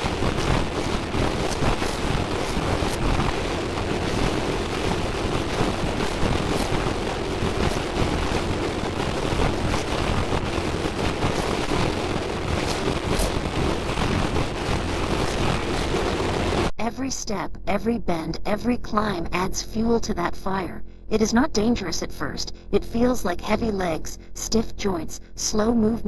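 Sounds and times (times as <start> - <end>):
faint crackles: 0.0 - 16.7
steady rushing noise: 0.0 - 16.7.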